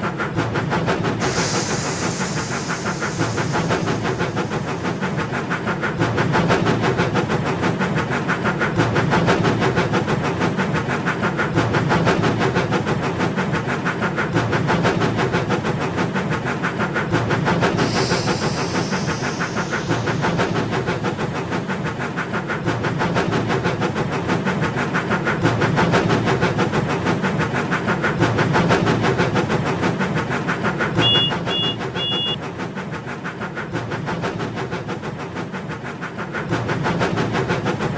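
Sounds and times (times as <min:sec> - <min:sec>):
short hiss: 0:01.2 - 0:05.3, 0:17.6 - 0:21.3.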